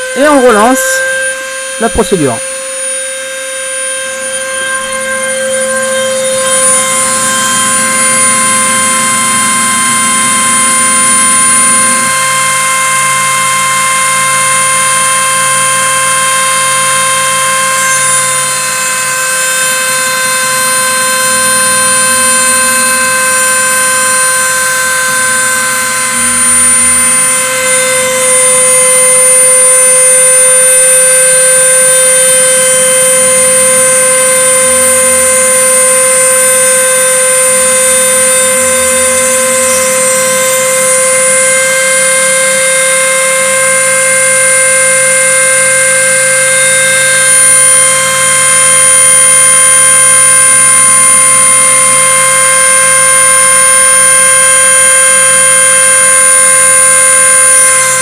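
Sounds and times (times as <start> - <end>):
router spindle high whine: 0.0 - 58.0.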